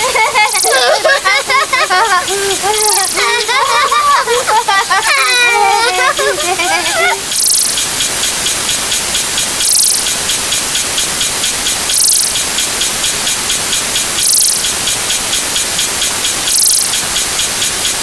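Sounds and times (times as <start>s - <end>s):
bright hissing swell: 0.0s - 18.0s
layered sound effects hissing: 0.0s - 18.0s.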